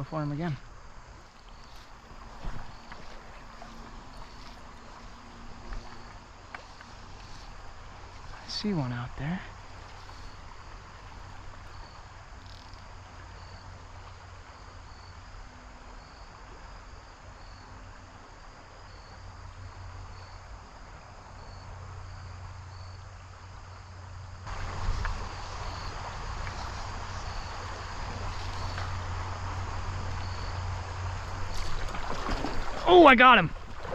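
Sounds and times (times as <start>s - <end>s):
creek rushing: 0.0s - 14.6s, 24.4s - 33.9s
crickets chirping: 0.0s - 33.9s.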